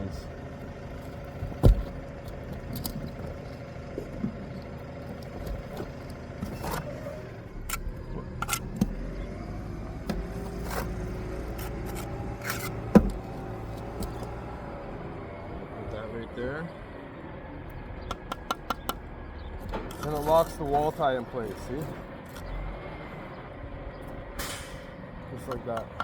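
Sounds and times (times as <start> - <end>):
low engine rumble: 0.0 - 26.0
bricks and tools scraping and knocking: 0.9 - 9.0, 10.1 - 14.3, 18.1 - 19.0, 19.6 - 22.6, 25.4 - 26.0.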